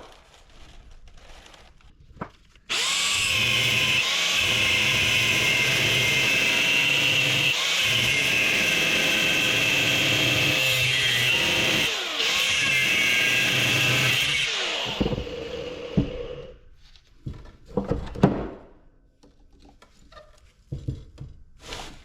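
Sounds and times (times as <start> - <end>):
angle grinder cutting steel: 2.7 - 16.4.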